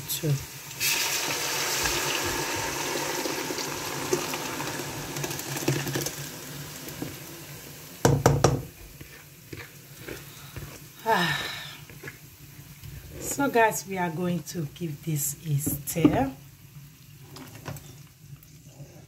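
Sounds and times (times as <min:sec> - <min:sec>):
tomato puree sizzling in oil: 0:00.0 - 0:19.0
sharp knocks on metal pot: 0:08.0 - 0:08.7.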